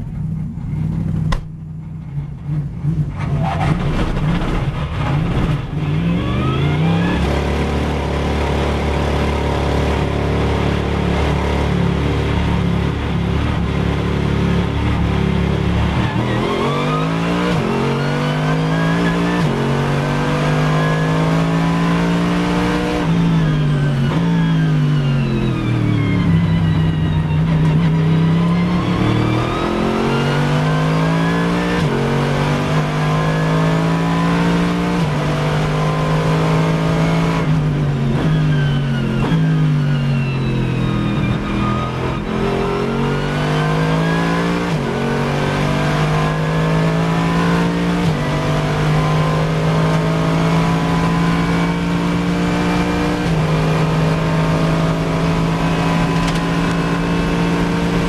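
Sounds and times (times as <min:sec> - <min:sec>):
car engine revving and shifting gears: 0:00.0 - 0:58.0.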